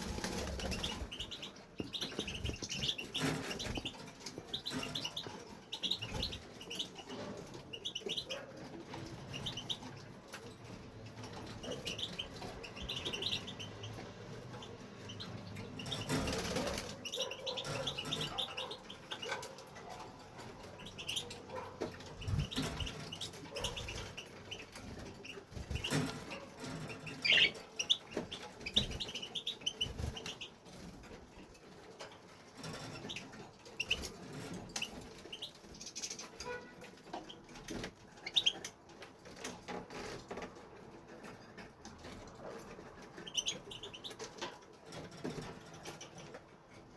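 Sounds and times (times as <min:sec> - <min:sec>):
bird twittering chirps: 0:00.0 - 0:08.4, 0:11.3 - 0:19.5, 0:20.6 - 0:30.6, 0:43.2 - 0:44.3
wing fluttering: 0:00.0 - 0:10.0, 0:11.1 - 0:31.2.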